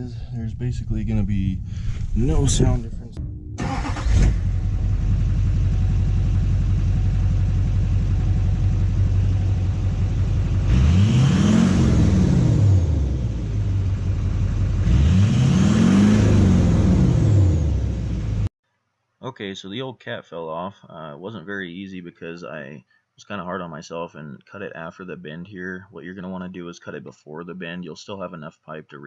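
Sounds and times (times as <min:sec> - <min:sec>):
diesel engine idling and revving: 0:03.6 - 0:18.5.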